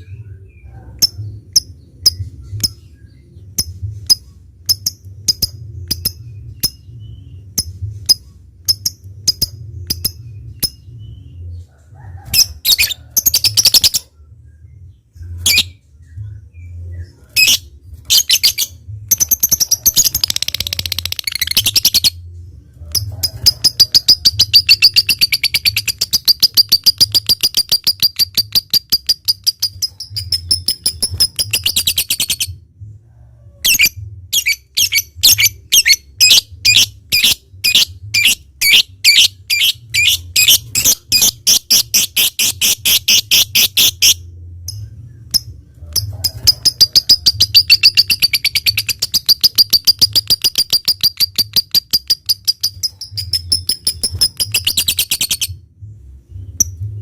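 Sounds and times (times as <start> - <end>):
bird rapid chattering trill: 23.0 - 32.4, 34.4 - 44.2, 46.0 - 55.5
bird high chirps: 33.7 - 44.2, 45.3 - 55.6.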